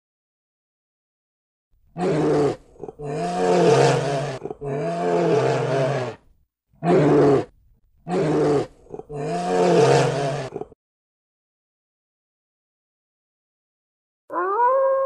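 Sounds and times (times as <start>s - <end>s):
bear growling: 2.0s - 6.2s, 6.8s - 7.5s, 8.1s - 10.8s.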